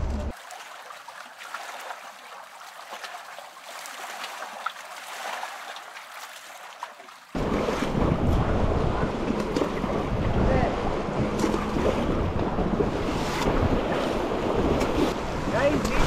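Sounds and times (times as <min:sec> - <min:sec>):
rushing river water: 0:00.3 - 0:16.0
wind buffeting microphone: 0:07.4 - 0:16.0.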